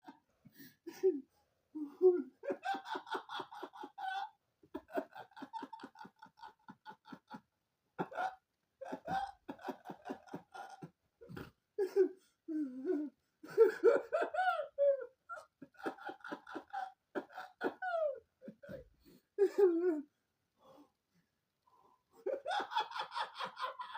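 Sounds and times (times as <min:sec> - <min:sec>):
person laughing hard: 0:01.8 - 0:07.4, 0:08.0 - 0:20.0, 0:22.2 - 0:23.9.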